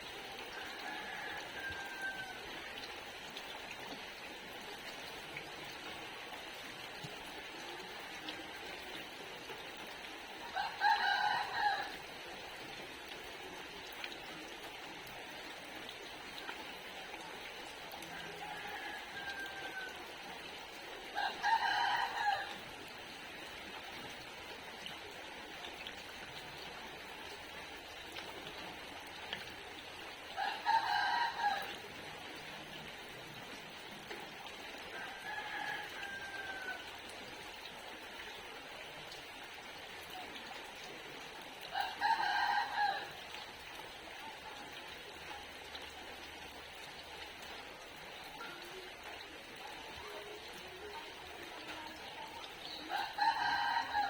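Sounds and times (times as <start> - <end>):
rain hiss: 0.0 - 54.0
fainter rooster calls: 0.6 - 2.5, 18.3 - 20.1, 30.4 - 31.8, 34.9 - 36.9, 41.7 - 43.2, 52.9 - 54.0
rooster crowing: 0.6 - 2.5, 10.5 - 12.0, 18.1 - 20.1, 21.2 - 22.6, 30.4 - 31.8, 34.9 - 36.9, 41.7 - 43.2, 52.9 - 54.0.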